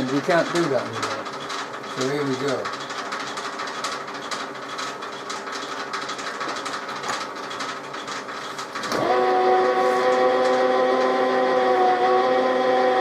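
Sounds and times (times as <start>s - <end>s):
metal lathe gear whine: 8.8s - 13.0s.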